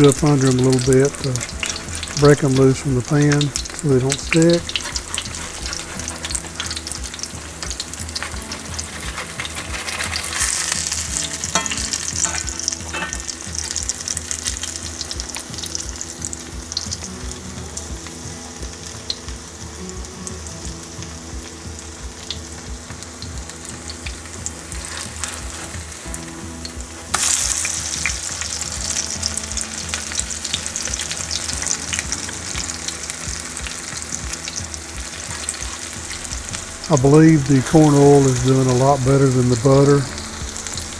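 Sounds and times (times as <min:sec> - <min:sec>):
food frying with crackling sizzle: 0:00.0 - 0:40.9
spatula scraping and tapping pan: 0:00.2 - 0:13.8, 0:24.7 - 0:25.9.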